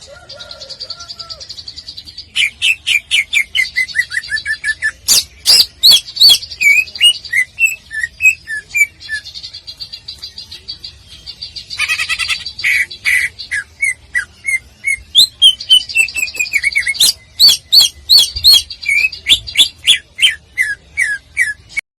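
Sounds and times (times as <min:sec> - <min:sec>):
bird singing fast varied song: 0:00.3 - 0:21.8.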